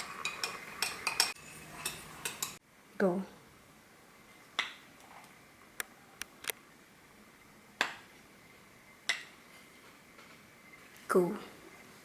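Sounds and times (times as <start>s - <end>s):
tableware clinking: 0.0s - 2.6s.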